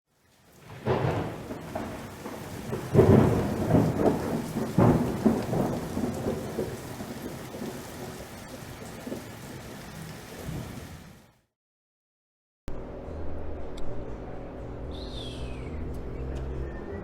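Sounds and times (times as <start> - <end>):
steady rain: 0.1 - 11.4
rolling thunder: 0.6 - 11.2.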